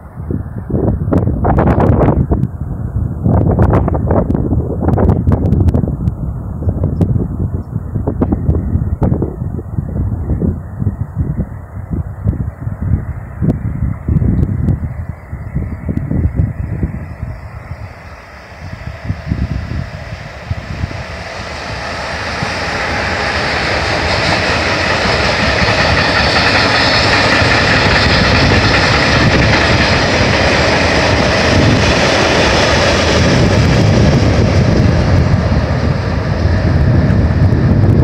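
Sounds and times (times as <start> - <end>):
electric locomotive passing: 0.0 - 38.0
train wheels running over rails: 15.5 - 38.0.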